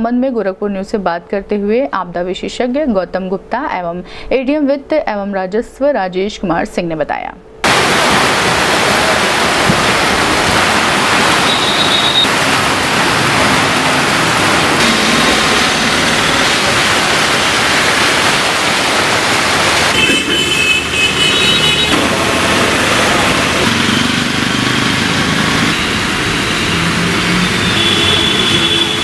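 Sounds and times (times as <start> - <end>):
heavy rain pouring: 7.6 - 29.0.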